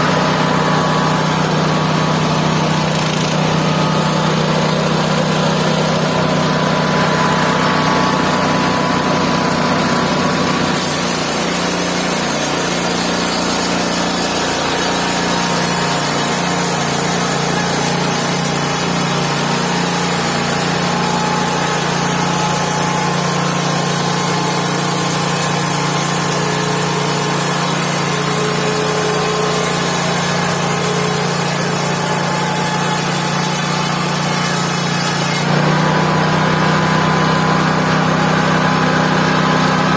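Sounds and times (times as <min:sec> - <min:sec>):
band blade cutting log: 0:00.0 - 0:39.7
sawmill engine running: 0:00.0 - 0:39.9.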